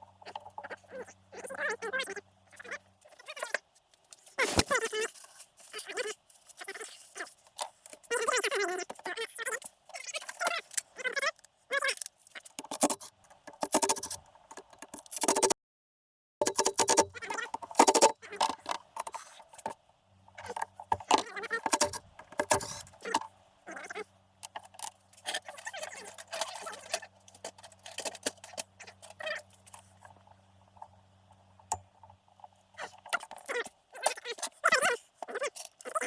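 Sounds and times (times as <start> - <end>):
metal parts and tools clinking: 16.4 - 19.8, 24.4 - 30.0, 33.0 - 36.0
faint steady hum: 16.5 - 36.0.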